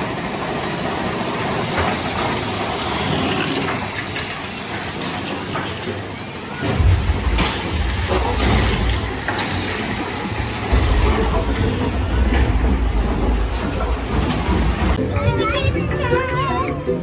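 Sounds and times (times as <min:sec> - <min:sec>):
roller coaster rumbling on track: 0:00.0 - 0:17.0
track clacks: 0:00.0 - 0:17.0.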